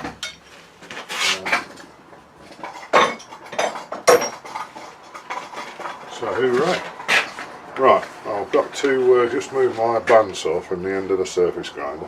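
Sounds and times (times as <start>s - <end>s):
hard objects clattering on workbench: 0.0s - 7.6s
sharp metallic knocks: 2.8s - 5.8s.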